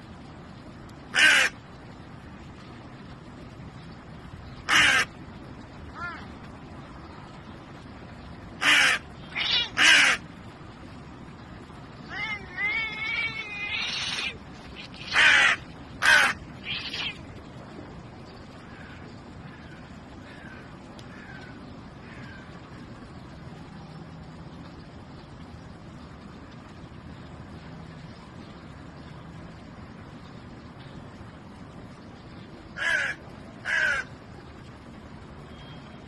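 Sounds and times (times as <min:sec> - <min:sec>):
harsh rasping animal calls: 0:01.1 - 0:01.6, 0:04.7 - 0:05.1, 0:08.6 - 0:10.2, 0:12.1 - 0:17.2.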